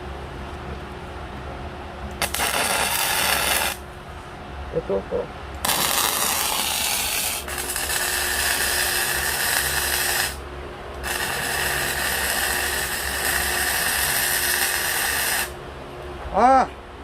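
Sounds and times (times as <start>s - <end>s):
welding arc hissing and crackling: 2.2s - 3.8s, 5.6s - 10.4s, 11.0s - 15.6s.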